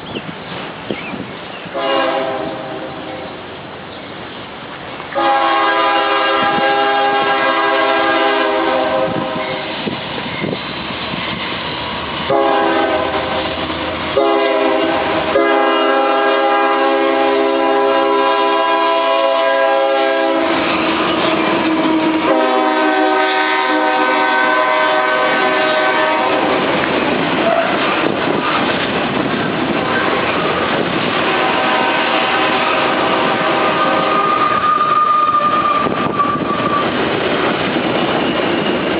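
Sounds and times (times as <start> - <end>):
freight cars rumbling on rails: 0.0 - 38.9
train air horn blasts: 1.7 - 3.3, 5.2 - 9.8, 12.3 - 26.6, 31.2 - 36.9.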